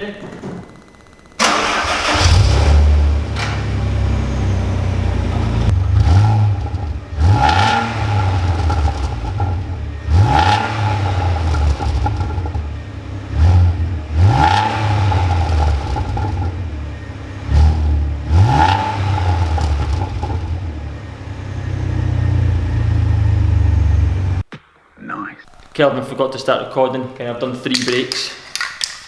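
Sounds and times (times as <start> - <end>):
car engine revving: 1.4 - 24.4.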